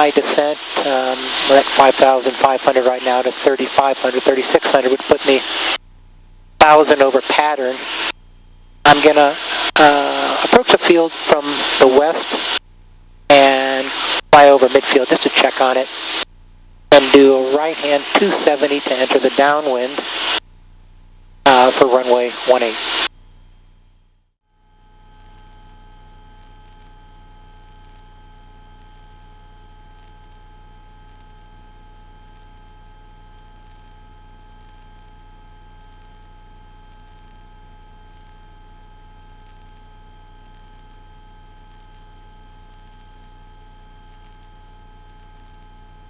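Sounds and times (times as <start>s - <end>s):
aircraft engine drone: 0.0s - 5.8s
high-pitched electrical whine: 0.0s - 5.8s, 6.5s - 12.6s, 13.3s - 16.3s, 21.4s - 46.0s.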